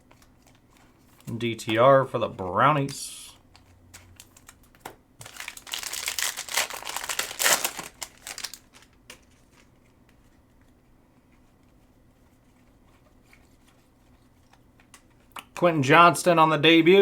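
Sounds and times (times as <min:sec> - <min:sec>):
foil wrapper crinkling: 0:03.5 - 0:09.8.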